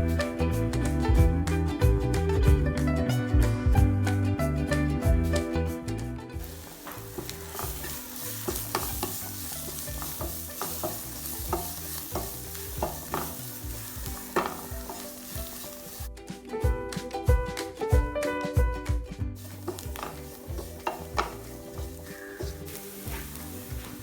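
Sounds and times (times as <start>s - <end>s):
food sizzling in hot oil: 6.4s - 16.1s, 19.4s - 24.0s
utensil scraping a pan: 6.4s - 16.1s, 19.4s - 24.0s.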